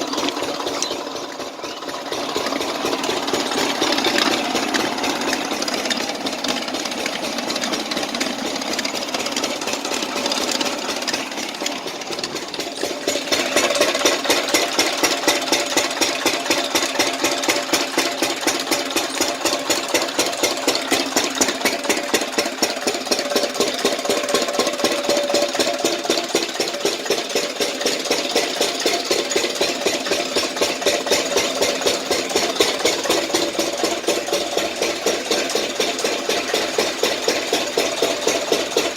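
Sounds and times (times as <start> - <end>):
water pump engine running: 0.0 - 38.9.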